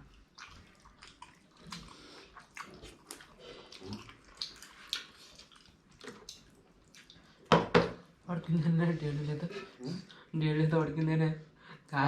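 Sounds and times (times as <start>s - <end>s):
soft wet chewing: 0.0s - 8.3s, 9.1s - 10.4s.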